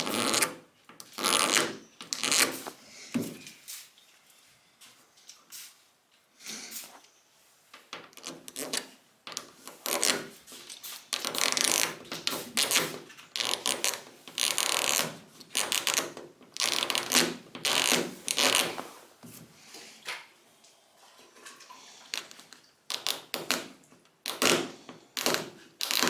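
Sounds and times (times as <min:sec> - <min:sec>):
razor blade scraping clear coat: 0:00.0 - 0:02.8, 0:09.6 - 0:10.3, 0:24.3 - 0:26.0.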